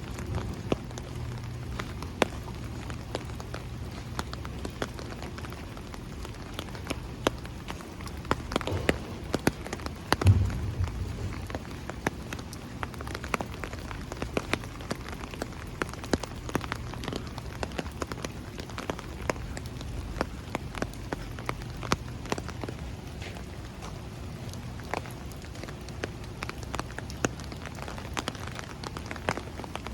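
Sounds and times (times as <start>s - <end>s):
steady rain falling: 0.0s - 29.9s
water drips tapping: 0.1s - 22.8s
low thump: 10.1s - 12.1s.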